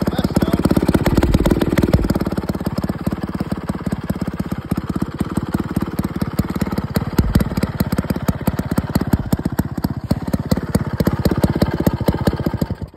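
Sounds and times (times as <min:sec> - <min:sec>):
chainsaw engine putter: 0:00.6 - 0:02.3.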